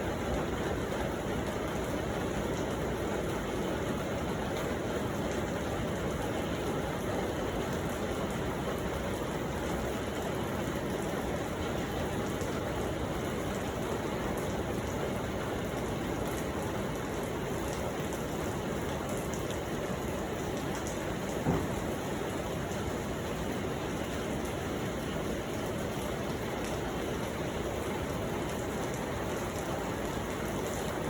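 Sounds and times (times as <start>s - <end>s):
steady rain: 0.0s - 31.0s
raindrop ticks: 11.9s - 31.0s
sharp knock: 21.4s - 21.8s.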